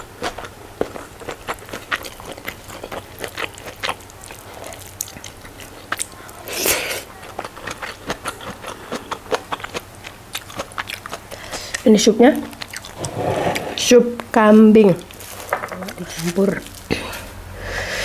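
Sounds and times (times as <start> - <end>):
chewing and mouth smacks: 0.0 - 6.4, 7.1 - 13.0.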